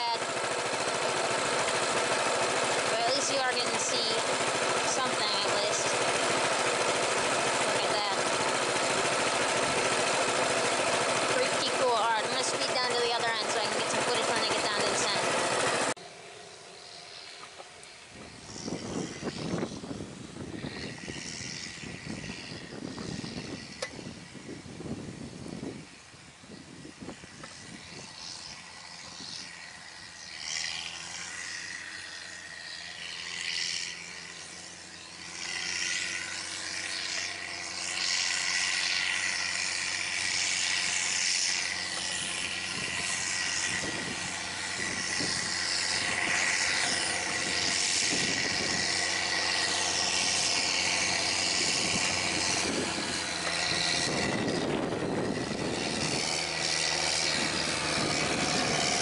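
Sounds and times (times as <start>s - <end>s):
engine running: 0.0s - 59.0s
wind rushing over microphone: 18.1s - 29.6s, 42.2s - 59.0s.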